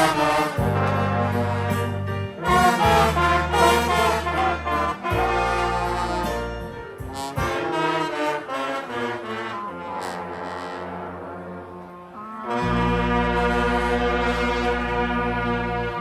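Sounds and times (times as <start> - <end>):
low bass notes: 0.0 - 8.1, 12.4 - 16.0
brass instruments playing melody: 0.0 - 16.0.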